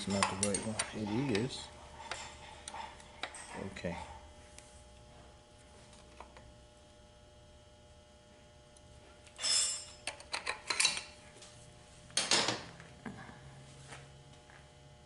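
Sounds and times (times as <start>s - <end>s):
metal parts clinking and scraping: 0.0s - 2.4s, 9.4s - 11.1s.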